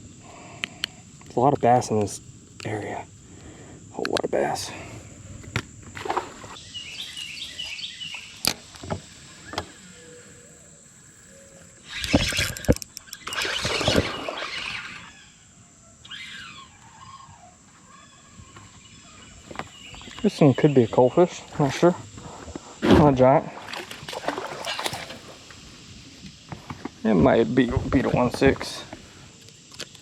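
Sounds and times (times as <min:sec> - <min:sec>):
birds chirping: 0:00.0 - 0:22.7
high insect-like whine: 0:00.0 - 0:30.0.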